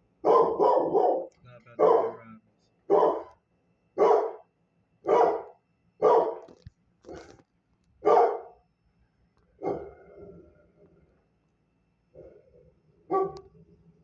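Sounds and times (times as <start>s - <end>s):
dog barking: 0.2s - 2.2s, 2.9s - 3.4s, 4.0s - 6.5s, 8.0s - 8.6s, 9.6s - 10.0s, 13.1s - 13.5s.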